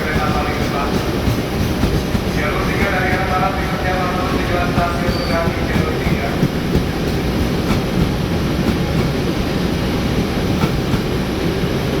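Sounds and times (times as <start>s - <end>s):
wheels clicking over rail joints: 0.0s - 9.4s.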